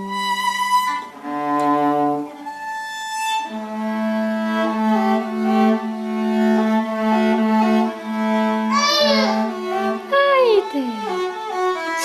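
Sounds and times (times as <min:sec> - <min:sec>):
bowed viola melody: 0:00.0 - 0:12.0.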